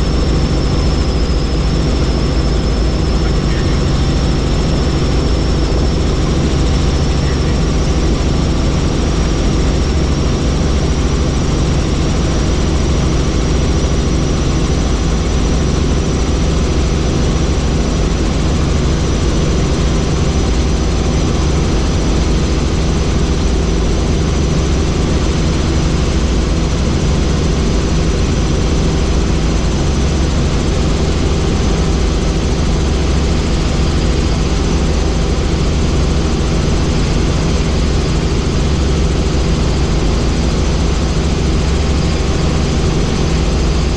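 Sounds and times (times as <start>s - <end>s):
helicopter rotor rumble: 0.0s - 43.9s
turbine whine: 0.0s - 43.9s.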